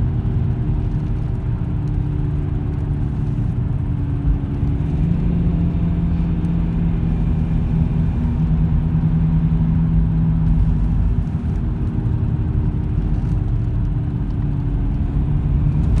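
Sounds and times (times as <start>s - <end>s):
car low rumble: 0.0s - 16.0s.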